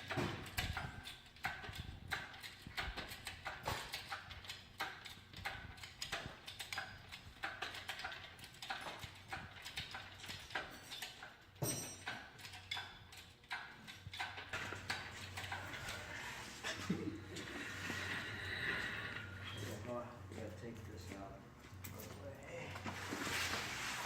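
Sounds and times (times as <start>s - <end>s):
tools and metal parts clicking: 0.0s - 16.8s.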